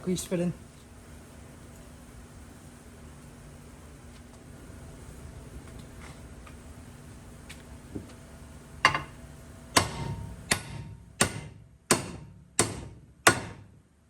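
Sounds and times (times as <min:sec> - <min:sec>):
hammer striking steel: 0:08.9 - 0:13.7.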